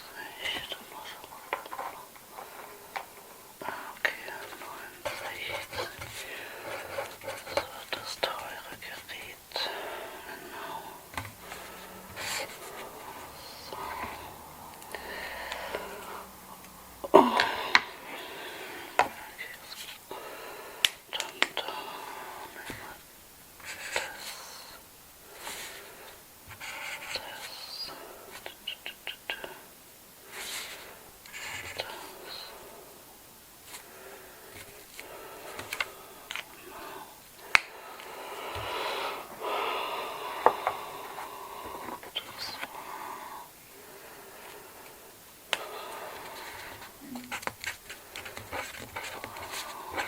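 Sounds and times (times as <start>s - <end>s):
soft rustling: 0.0s - 20.1s, 33.6s - 39.4s
soft whispering: 0.0s - 50.0s.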